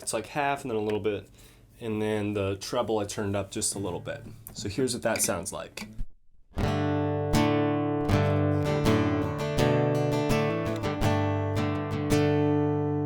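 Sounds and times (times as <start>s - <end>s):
acoustic guitar strumming chords: 6.6s - 13.0s.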